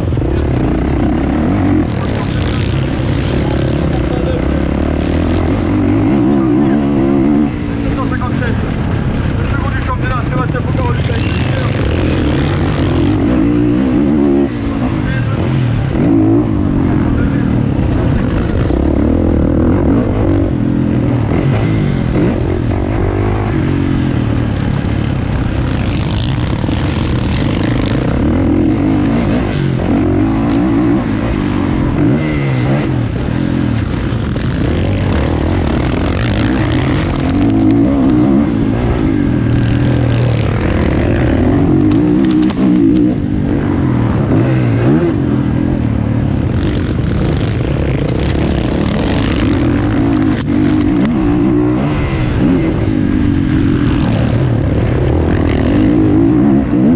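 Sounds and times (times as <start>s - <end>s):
motocross bike engine revving: 0.0s - 56.9s.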